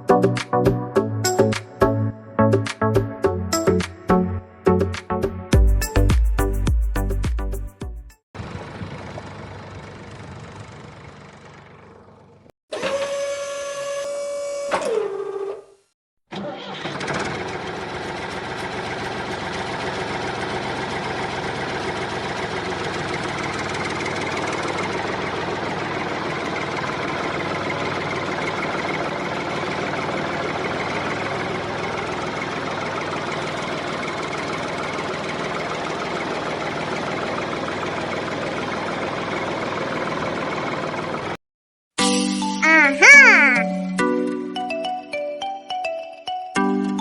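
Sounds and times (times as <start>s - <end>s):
motor running with rattle: 8.4s - 14.8s, 16.8s - 41.4s
small motor whining: 12.7s - 15.7s.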